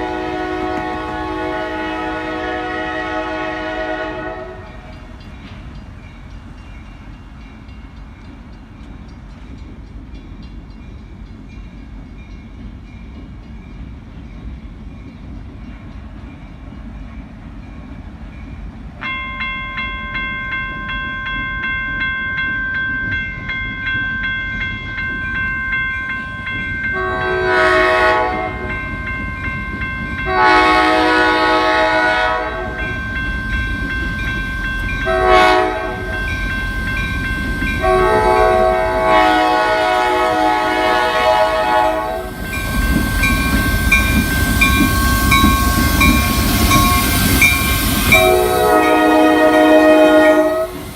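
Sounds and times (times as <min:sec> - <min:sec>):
locomotive horn blasts: 0:00.0 - 0:04.9, 0:26.9 - 0:28.8, 0:30.2 - 0:33.0, 0:35.0 - 0:36.3, 0:37.8 - 0:42.8, 0:48.1 - 0:50.9
train rumbling: 0:00.0 - 0:50.9
steady high ringing tone: 0:19.0 - 0:27.2, 0:32.7 - 0:38.8, 0:42.3 - 0:49.8.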